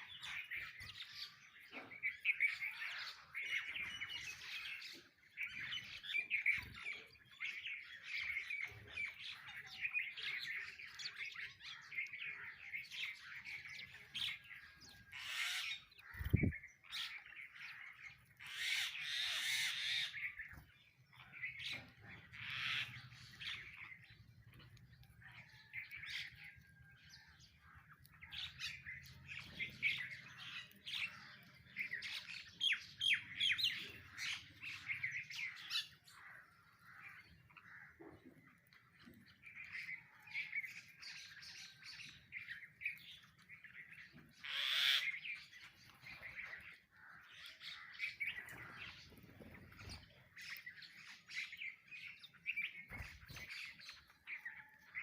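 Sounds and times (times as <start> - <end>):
sparrows chirping: 0.0 - 55.0.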